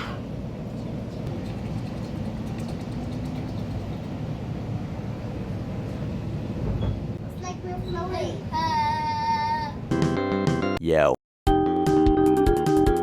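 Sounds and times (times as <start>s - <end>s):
light-rail train rumble: 0.0s - 9.9s.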